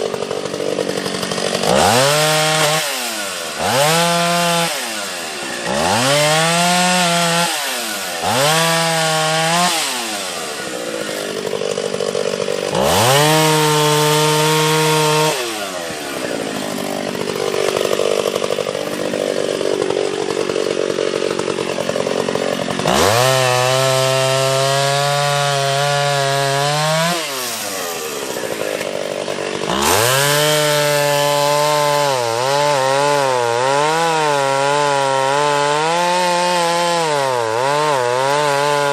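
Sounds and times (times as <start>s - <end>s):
chainsaw revving: 0.0s - 38.9s
chainsaw bogging down cutting wood: 26.4s - 32.0s.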